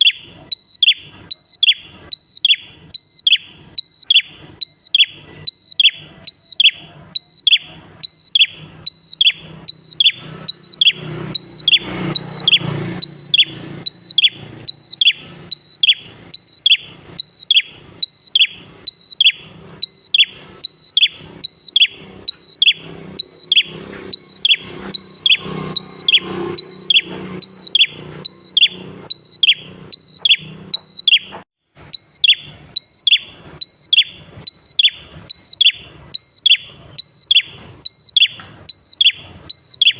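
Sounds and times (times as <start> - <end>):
bird calling high sharp notes: 0.0 - 39.9.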